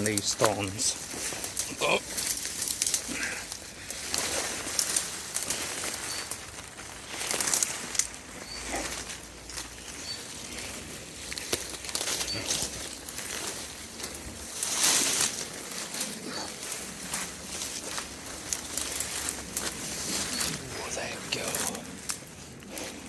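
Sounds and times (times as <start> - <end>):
brambles and twigs crackling: 0.0 - 23.0
footsteps through undergrowth: 0.0 - 23.0
high bird chirps: 9.8 - 10.5.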